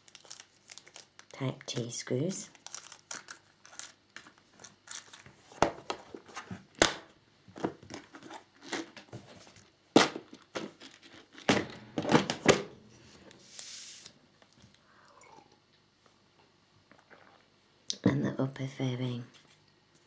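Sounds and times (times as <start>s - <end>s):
plastic bags crinkling: 0.0s - 6.4s, 7.6s - 12.6s
items clicking and knocking: 2.7s - 12.8s.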